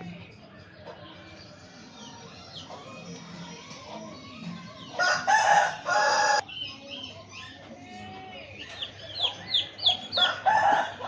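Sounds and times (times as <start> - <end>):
chicks peeping: 0.0 - 11.0
rooster crowing: 5.0 - 6.4.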